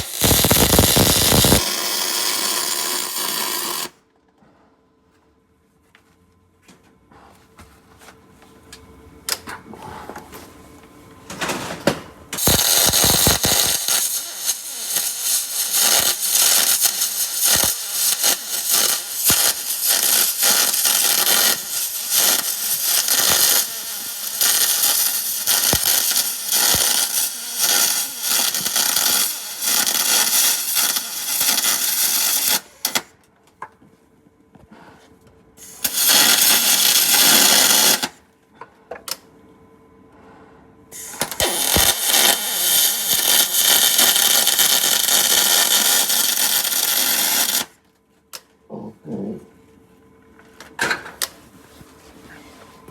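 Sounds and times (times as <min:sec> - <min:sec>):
welding arc crackling hiss: 0:00.0 - 0:04.0, 0:12.4 - 0:33.1, 0:35.6 - 0:38.2, 0:41.0 - 0:47.7.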